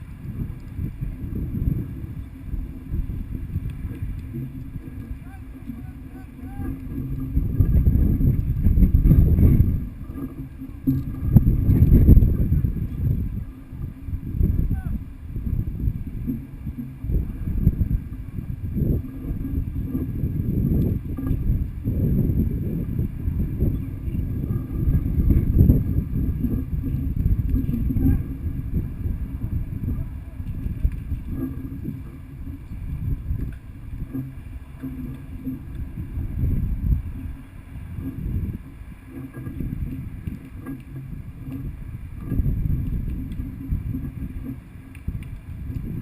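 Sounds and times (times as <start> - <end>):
low uneven rumbling: 0.0 - 46.0
wind buffeting microphone: 0.0 - 46.0
faint clicks: 0.5 - 0.8, 3.6 - 7.8, 26.5 - 28.3, 30.4 - 46.0.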